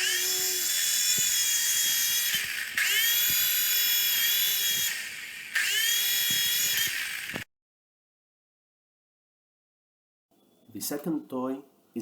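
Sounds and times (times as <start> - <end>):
small electric motor whining: 0.0 - 7.5.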